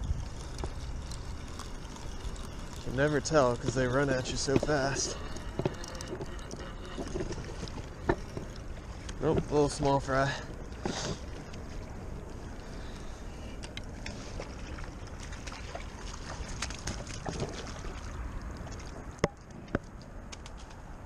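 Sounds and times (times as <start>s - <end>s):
gear clicks: 0.0s - 14.2s
water noise: 0.0s - 21.0s
wind: 0.0s - 21.0s.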